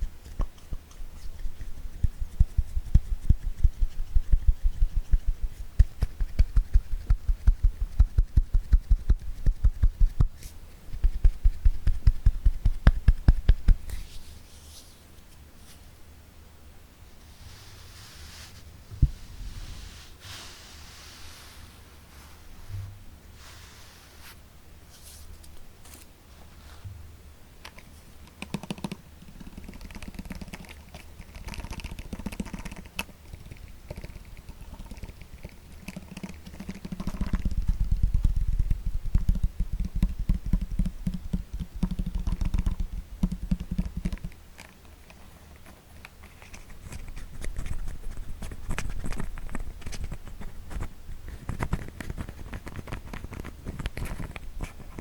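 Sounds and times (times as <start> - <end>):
fingertips tapping: 0.0 - 14.0, 27.6 - 55.0.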